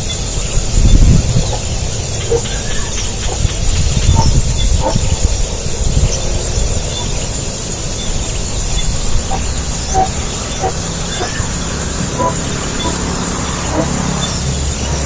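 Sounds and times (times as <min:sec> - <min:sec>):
high bird chirps: 0:06.0 - 0:15.0.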